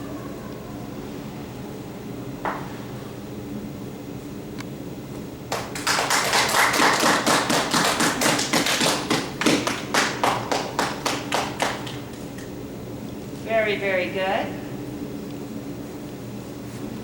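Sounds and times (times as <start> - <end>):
steady low hum: 0.0 - 17.0
people clapping: 5.5 - 12.5.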